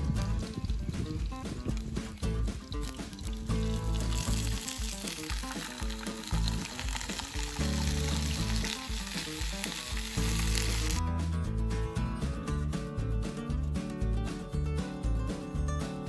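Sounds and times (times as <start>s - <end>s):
vegetables sizzling in oil: 2.7s - 11.0s.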